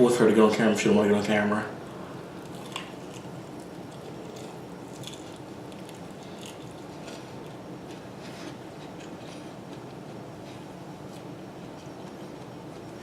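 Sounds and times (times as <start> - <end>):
person chewing food: 1.8 - 13.0.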